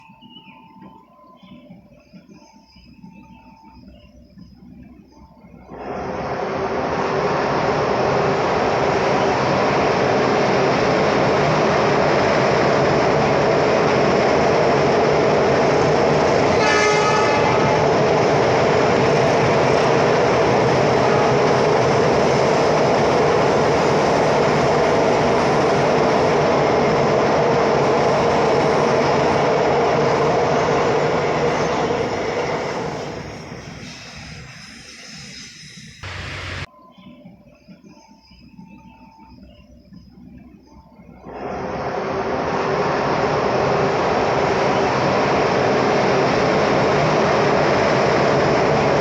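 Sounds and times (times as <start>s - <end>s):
train running past: 0.0s - 49.0s
train horn blast: 16.5s - 18.0s, 20.8s - 21.9s.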